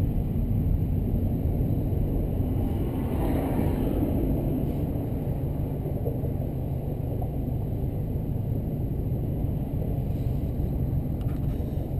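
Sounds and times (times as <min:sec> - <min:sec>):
car engine and exhaust rumble: 0:00.0 - 0:11.9.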